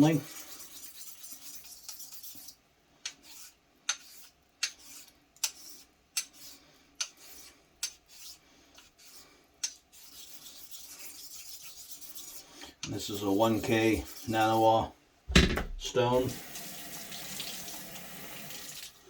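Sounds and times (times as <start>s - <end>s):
razor rubbing on whetstone: 0.0s - 2.6s, 3.2s - 14.7s.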